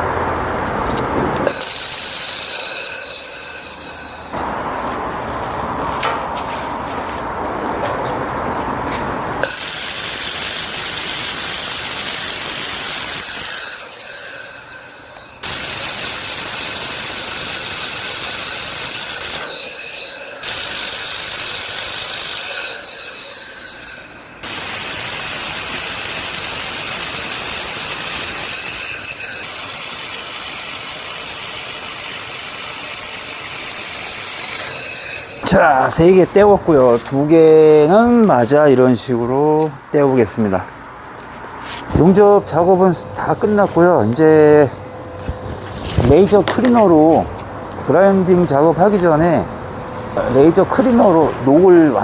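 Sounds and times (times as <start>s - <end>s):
laser welder hissing: 1.5s - 4.3s, 9.4s - 35.4s.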